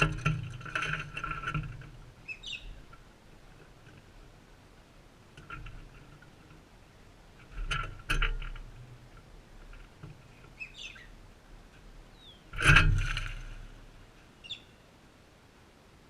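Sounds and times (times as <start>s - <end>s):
birds knocking and scrabbling on feeder: 0.0s - 4.4s, 5.3s - 11.1s, 12.5s - 14.0s.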